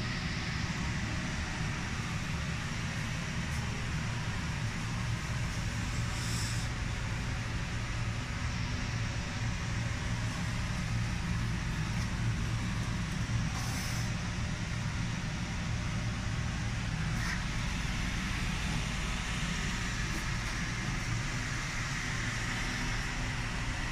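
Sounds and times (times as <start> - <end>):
machinery humming: 0.0 - 23.9
air hissing: 5.5 - 6.8, 13.4 - 14.2.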